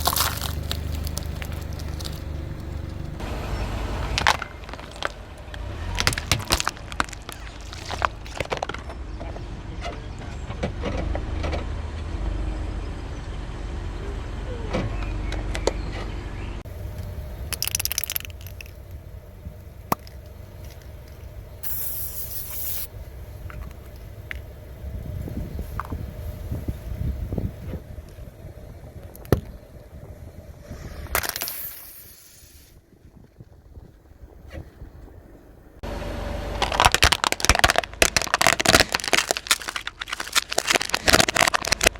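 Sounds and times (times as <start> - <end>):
tyre cracking over objects: 0.0 - 3.2, 4.1 - 9.0, 36.6 - 41.9
low rumble: 0.0 - 10.4
car engine running low: 0.0 - 31.3, 32.8 - 41.9
short hissing burst: 21.6 - 22.9, 30.6 - 32.8.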